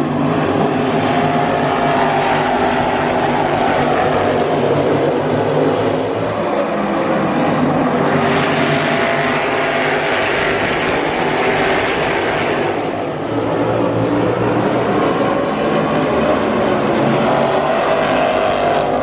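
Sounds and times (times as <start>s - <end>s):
race car engines droning: 0.0s - 19.0s.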